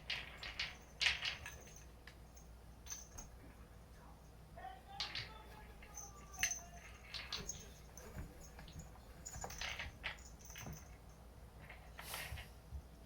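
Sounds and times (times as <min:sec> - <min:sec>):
cats tapping and scuffling: 0:05.0 - 0:13.0.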